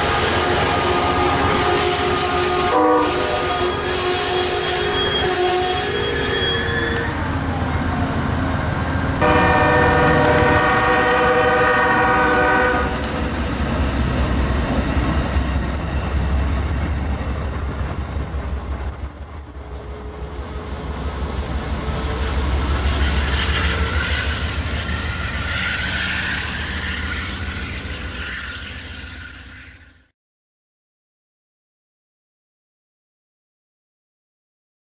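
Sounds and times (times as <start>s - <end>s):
train horn: 0.0s - 7.2s, 9.2s - 13.4s.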